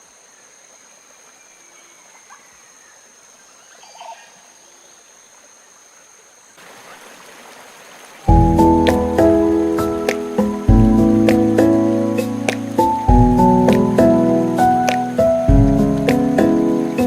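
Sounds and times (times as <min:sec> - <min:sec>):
faint animal calls: 0:01.4 - 0:05.1
steady hiss: 0:02.9 - 0:17.0.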